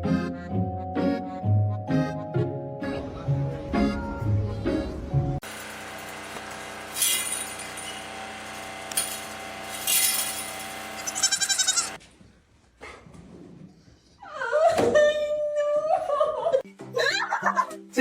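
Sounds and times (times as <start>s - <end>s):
animal crying out: 11.0s - 12.0s.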